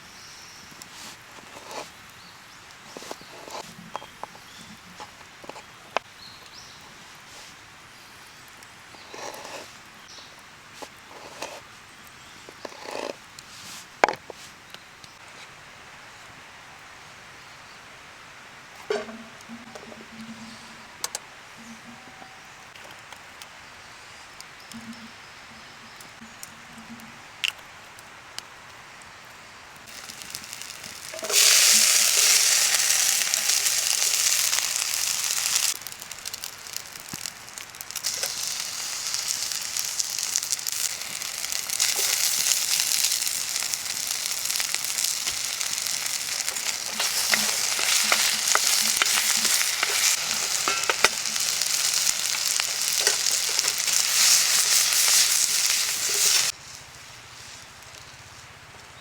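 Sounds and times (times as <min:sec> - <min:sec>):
steak sizzling in a pan: 0:29.9 - 0:56.6.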